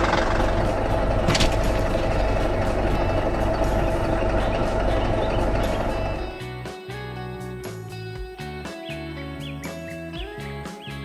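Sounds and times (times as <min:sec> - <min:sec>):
heavy diesel engine running: 0:00.0 - 0:06.4
sharp click: 0:01.2 - 0:01.9.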